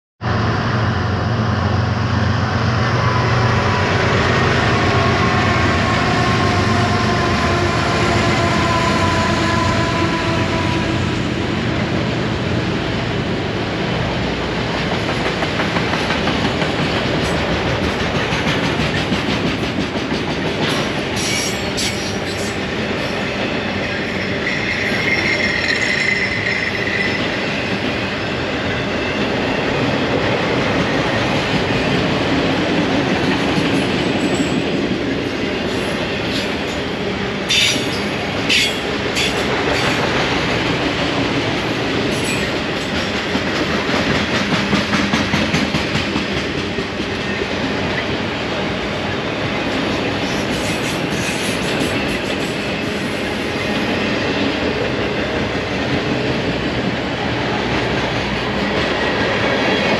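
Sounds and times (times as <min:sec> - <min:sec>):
diesel locomotive drone: 0:00.2 - 0:59.9
train wheels rumbling on rail: 0:00.2 - 0:59.9
wheel squeal: 0:24.0 - 0:27.4.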